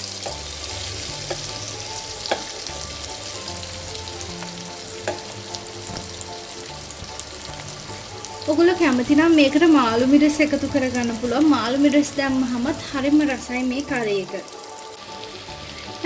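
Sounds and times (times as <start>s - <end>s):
food sizzling in hot oil: 0.0s - 16.0s
spoon knocking against pan: 1.2s - 2.8s, 4.3s - 6.3s.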